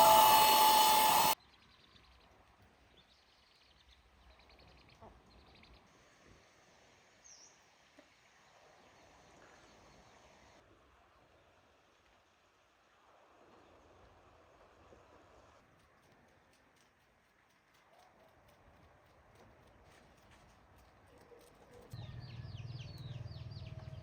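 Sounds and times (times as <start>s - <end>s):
power tool high whine: 0.0s - 1.4s
faint outdoor background noise: 0.0s - 24.0s
soft bird chirps: 22.0s - 24.0s.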